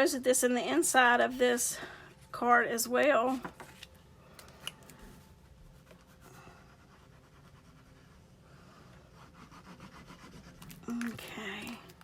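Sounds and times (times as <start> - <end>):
paper rustling and scratching: 3.3 - 5.1
scratchy strokes on paper: 5.8 - 10.8.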